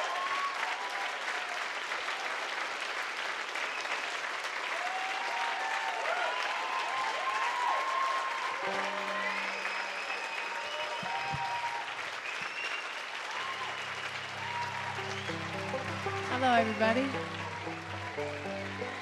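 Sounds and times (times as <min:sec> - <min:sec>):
audience applauding and cheering: 0:00.0 - 0:19.0
whistles: 0:03.6 - 0:04.0, 0:09.3 - 0:16.0
steady low held note: 0:13.6 - 0:19.0.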